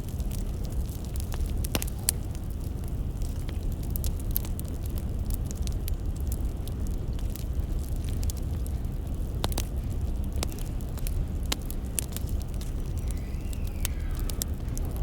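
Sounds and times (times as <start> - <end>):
firewood crackling and popping: 0.0 - 15.0.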